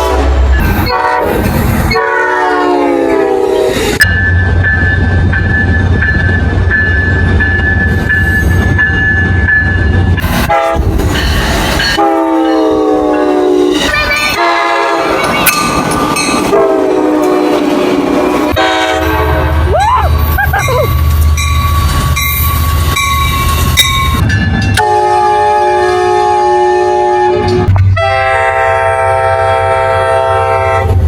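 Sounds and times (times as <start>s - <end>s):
locomotive horn blasts: 0.0s - 4.0s, 10.4s - 10.9s, 12.0s - 15.4s, 16.4s - 17.7s, 18.5s - 19.7s, 24.8s - 31.0s
passing train rumbling: 0.0s - 31.0s.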